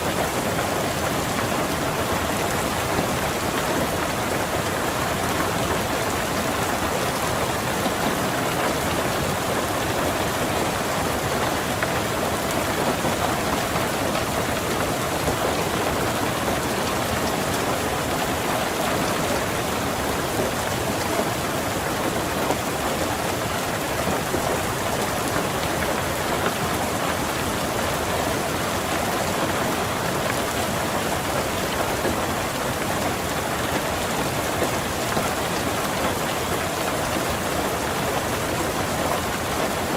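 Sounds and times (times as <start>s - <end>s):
rain on a car roof: 0.0s - 39.9s.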